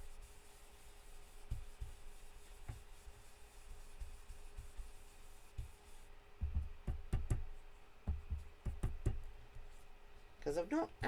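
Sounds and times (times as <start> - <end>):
brush rubbing on cardstock: 0.0 - 11.0
soft taps and knocks: 1.4 - 3.3, 5.6 - 9.9.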